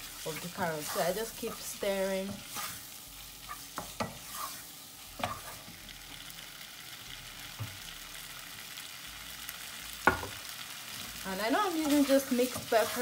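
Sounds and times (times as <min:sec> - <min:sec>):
wooden spoon scraping: 0:00.0 - 0:05.8, 0:11.7 - 0:13.0
chicken sizzling in a frying pan: 0:00.0 - 0:13.0.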